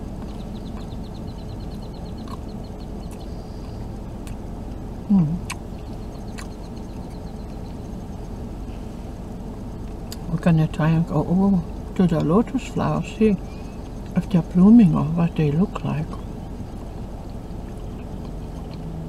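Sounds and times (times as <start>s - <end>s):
low hum in car cabin: 0.0s - 19.0s
faint rapid high ticking: 0.1s - 8.6s, 9.5s - 18.8s
person chewing: 2.1s - 2.4s, 3.0s - 7.2s, 17.6s - 19.0s
person humming low mm: 5.1s - 5.6s.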